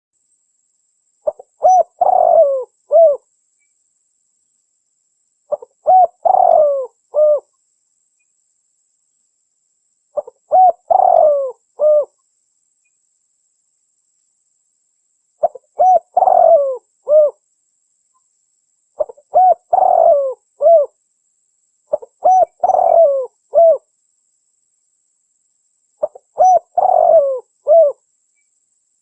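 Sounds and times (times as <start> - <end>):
spotted dove cooing: 1.2 - 3.2, 5.5 - 7.5, 10.2 - 12.1, 15.4 - 17.4, 19.0 - 21.0, 21.9 - 23.8, 26.0 - 28.0.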